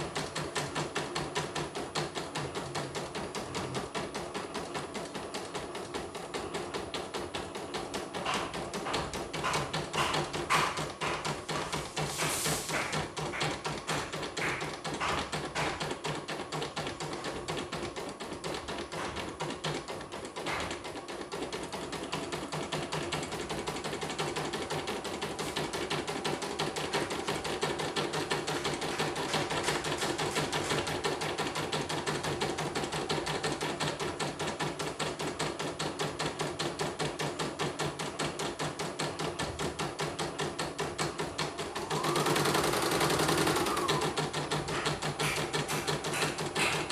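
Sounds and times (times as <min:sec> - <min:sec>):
embroidery machine needle clattering: 0:41.2 - 0:46.9.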